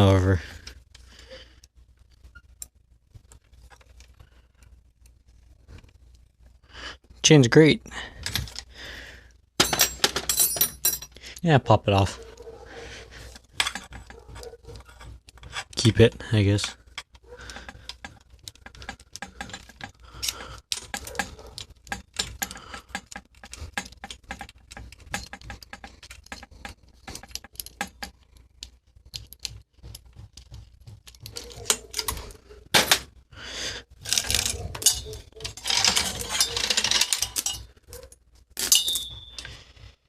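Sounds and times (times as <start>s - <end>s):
bicycle chain clicking and jingling: 12.5s - 28.2s, 34.0s - 39.7s.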